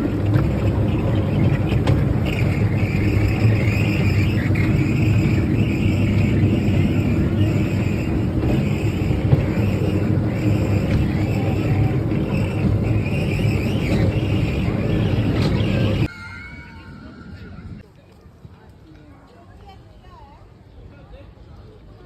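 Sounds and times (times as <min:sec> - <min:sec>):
tour train rumbling: 0:00.0 - 0:16.1.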